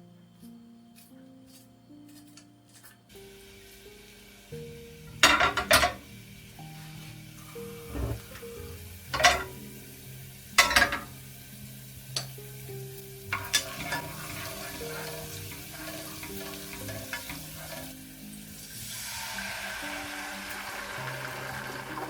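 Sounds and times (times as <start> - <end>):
light sizzle: 0.4 - 22.0
utensil clattering against pan: 5.2 - 6.0, 9.1 - 9.6, 10.6 - 11.1, 13.3 - 17.9
utensil scraping frying pan: 6.8 - 9.6, 13.3 - 18.5.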